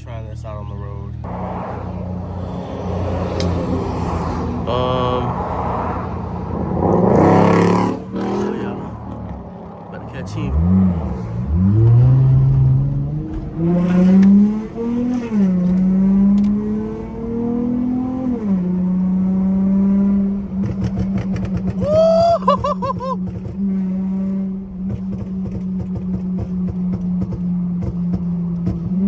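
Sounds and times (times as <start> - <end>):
car engine accelerating: 0.0 - 29.0
exhaust crackling: 0.0 - 29.0.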